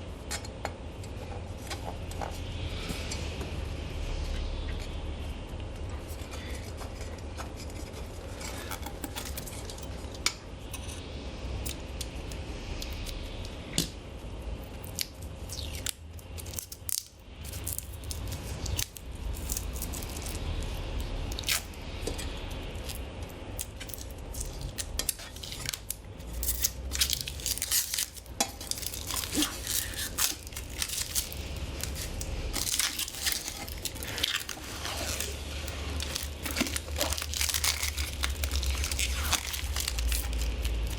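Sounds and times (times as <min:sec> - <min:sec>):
steady low hum: 0:00.0 - 0:40.9
plastic crinkling and tearing: 0:06.1 - 0:10.0, 0:14.9 - 0:21.8, 0:23.6 - 0:40.9
plastic film peeling: 0:15.0 - 0:20.7, 0:21.3 - 0:21.8, 0:23.6 - 0:40.9.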